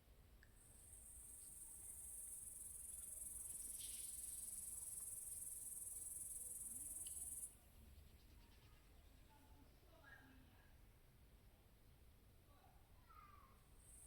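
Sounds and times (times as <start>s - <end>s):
insect trill: 0.7s - 7.5s.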